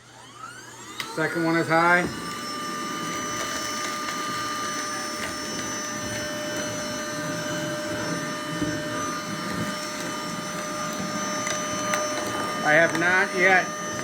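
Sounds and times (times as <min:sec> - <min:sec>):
handheld vacuum motor whine: 0:00.0 - 0:14.0.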